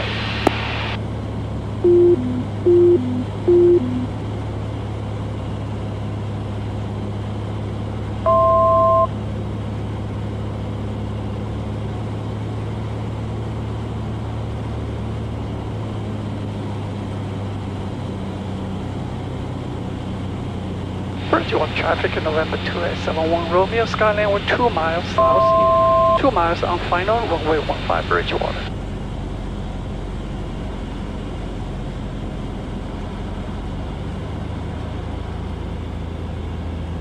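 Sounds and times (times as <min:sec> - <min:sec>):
piston engine droning: 0:01.7 - 0:09.1
falling two-note electronic beeps: 0:01.8 - 0:04.1, 0:08.3 - 0:09.1, 0:25.2 - 0:26.2
two-note tone: 0:01.8 - 0:04.2, 0:08.3 - 0:09.1, 0:25.2 - 0:26.2.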